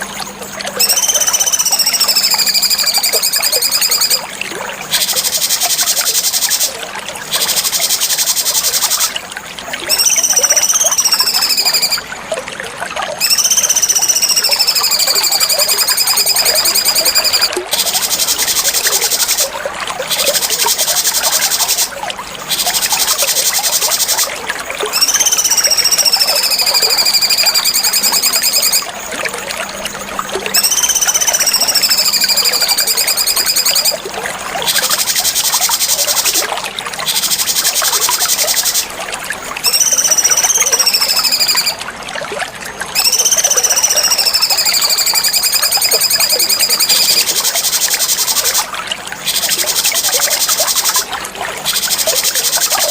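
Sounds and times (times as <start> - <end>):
songbird singing: 0.7 - 4.2, 9.8 - 12.0, 13.2 - 19.5, 24.9 - 28.9, 30.5 - 34.0, 39.6 - 41.8, 43.0 - 48.6.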